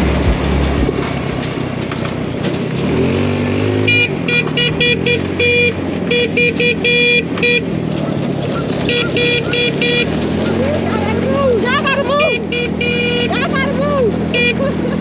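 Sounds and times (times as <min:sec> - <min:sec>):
horn honking: 0:00.0 - 0:01.5, 0:03.9 - 0:07.8, 0:08.9 - 0:10.2, 0:12.2 - 0:14.8
dune buggy engine rumbling: 0:00.0 - 0:15.0.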